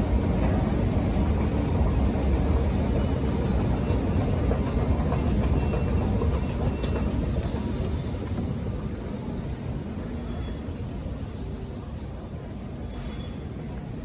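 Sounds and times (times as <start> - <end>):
underground train rumbling: 0.0 - 14.0.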